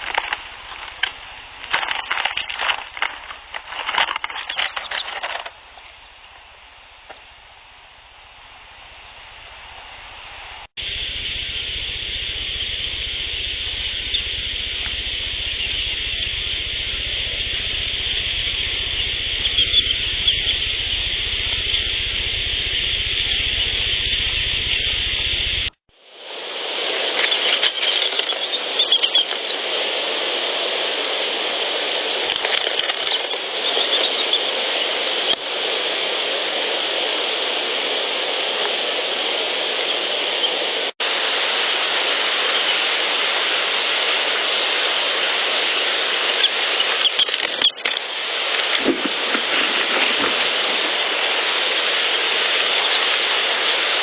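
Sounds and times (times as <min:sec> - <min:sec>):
loud steady hiss: 0:00.0 - 0:54.0
faint small animal sounds: 0:13.4 - 0:24.0, 0:27.1 - 0:29.8, 0:32.3 - 0:35.4, 0:46.0 - 0:54.0.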